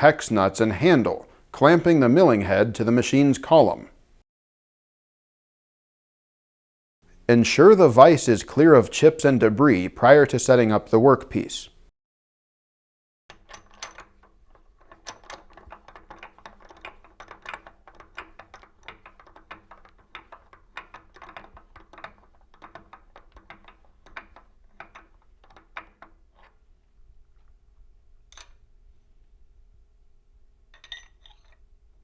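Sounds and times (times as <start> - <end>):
metal clicks and taps: 13.3 - 27.6, 28.2 - 28.7, 30.7 - 31.6.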